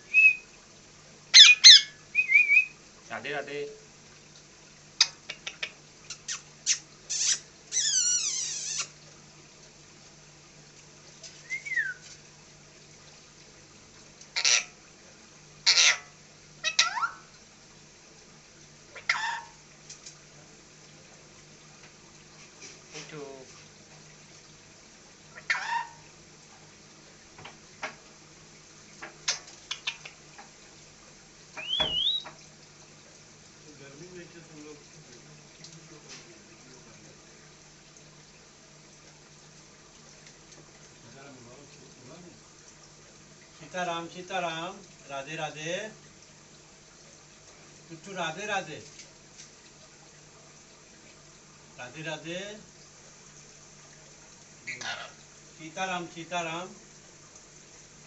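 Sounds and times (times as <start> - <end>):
parrot chirping and screeching: 1.3 - 2.7, 6.1 - 8.9, 14.4 - 14.8, 15.6 - 17.3, 18.9 - 19.6, 25.3 - 26.0, 29.7 - 30.1, 31.6 - 32.3, 54.7 - 55.2.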